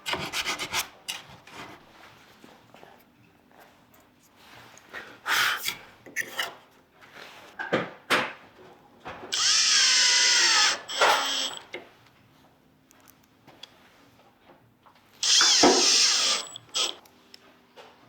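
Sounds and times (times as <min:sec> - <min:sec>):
power drill whining: 0:09.3 - 0:11.7, 0:15.2 - 0:17.0.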